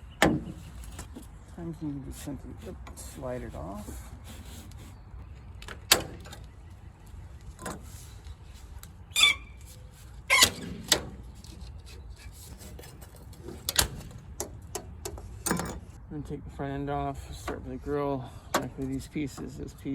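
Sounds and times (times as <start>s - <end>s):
metal squeak: 9.1s - 14.1s
metal trim clicks and knocks: 12.8s - 16.0s, 18.5s - 19.5s.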